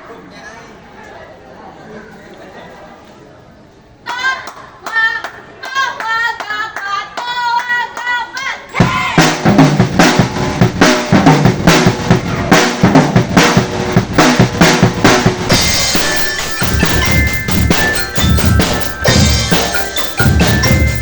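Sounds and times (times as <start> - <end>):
snare and bass drums: 8.8 - 21.0
bright bell-like notes: 14.2 - 21.0.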